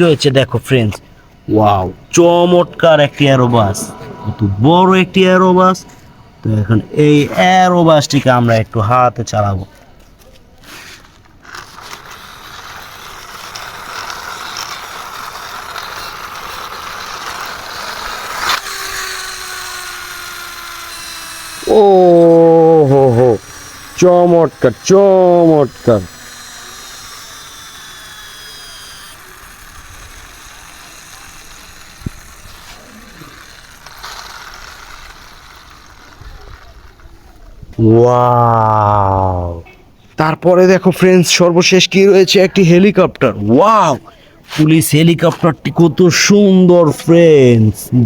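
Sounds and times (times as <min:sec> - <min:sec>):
toy gears whirring: 0:06.5 - 0:39.6.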